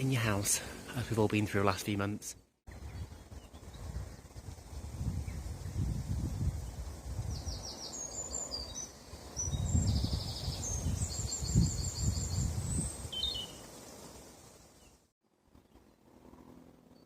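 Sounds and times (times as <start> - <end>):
wind buffeting microphone: 2.7 - 13.5
small birds chirping and trilling: 2.7 - 15.0.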